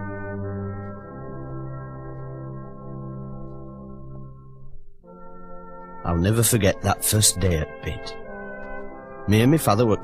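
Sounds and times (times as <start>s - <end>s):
brass band sustained chords: 5.1s - 10.0s.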